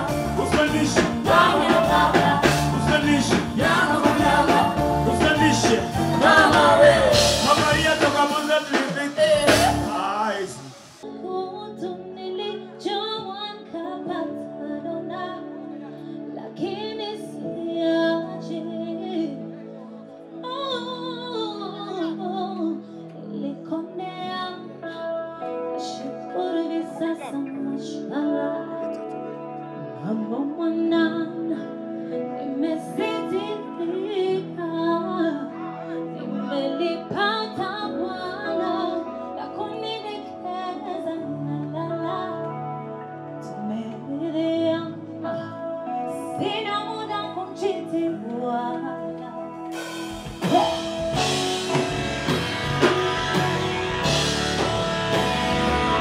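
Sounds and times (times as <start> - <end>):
band playing with guitar: 0.0 - 11.2, 44.9 - 56.0
sustained keyboard chords: 0.0 - 12.2, 33.3 - 56.0
person singing: 0.0 - 19.6, 20.7 - 52.0.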